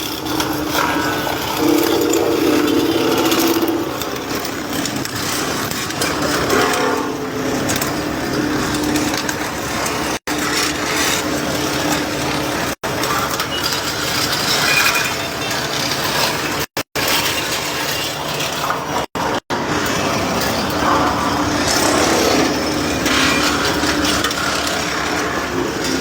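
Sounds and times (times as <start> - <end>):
metal crunching and scraping: 0.0 - 12.4
steady machine hum: 0.0 - 12.7, 19.3 - 26.0.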